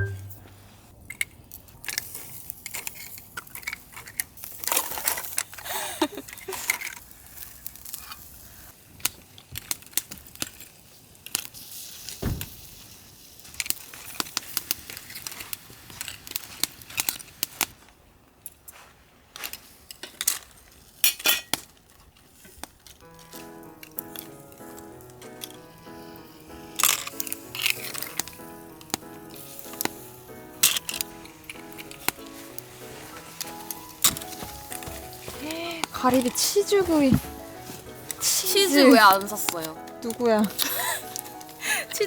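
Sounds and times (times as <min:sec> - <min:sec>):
light hiss: 0:10.8 - 0:17.8, 0:22.3 - 0:42.0
dishes and utensils clinking: 0:30.6 - 0:41.6.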